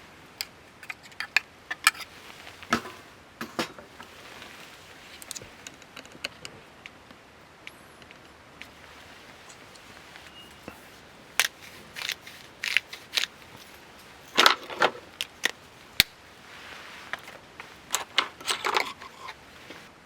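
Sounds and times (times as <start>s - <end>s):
handling crinkles and clicks: 0.4s - 3.1s, 3.9s - 19.9s.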